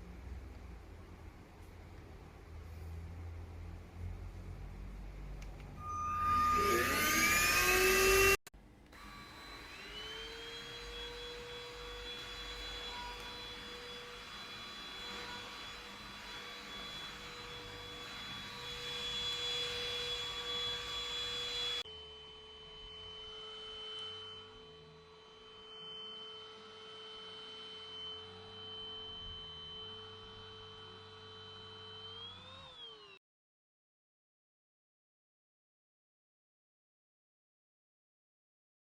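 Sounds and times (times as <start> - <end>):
vacuum cleaner motor whining: 5.8 - 33.2.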